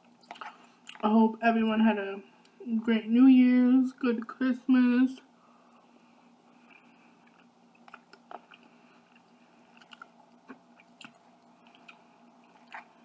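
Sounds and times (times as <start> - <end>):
person chewing: 0.2 - 1.0, 6.6 - 13.0.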